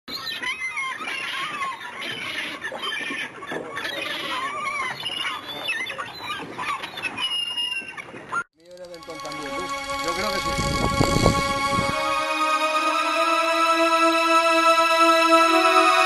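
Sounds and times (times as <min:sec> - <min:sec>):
chorus of birds calling: 0:00.1 - 0:08.4.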